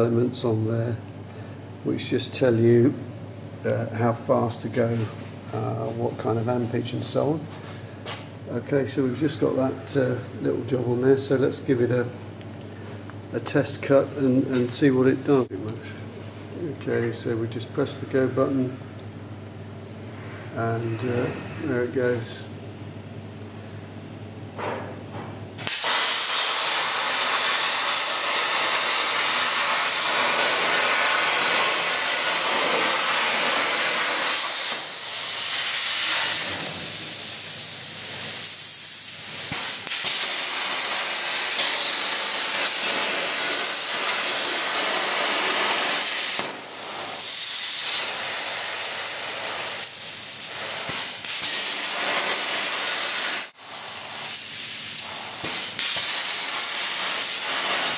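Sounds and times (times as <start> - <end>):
plasma torch hissing: 25.6 - 57.9.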